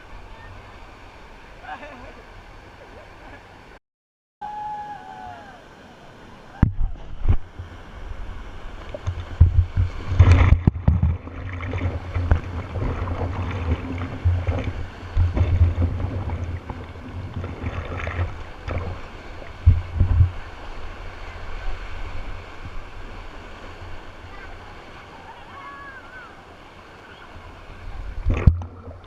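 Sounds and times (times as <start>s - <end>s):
water rushing and splashing: 0.0s - 3.8s, 4.4s - 29.0s
wind buffeting microphone: 6.6s - 24.4s.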